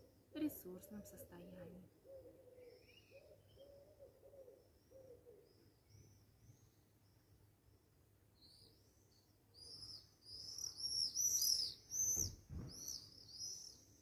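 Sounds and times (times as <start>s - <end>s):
low cooing bird notes: 0.7s - 5.6s
soft high bird chirps: 8.4s - 14.0s.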